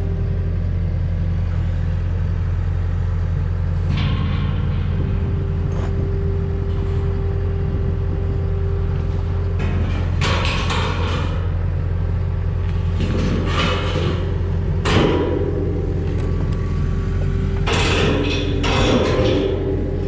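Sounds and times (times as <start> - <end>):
skid steer engine running: 0.0 - 20.0
metal scraping and clanking: 3.8 - 7.6, 8.9 - 11.6, 12.7 - 20.0.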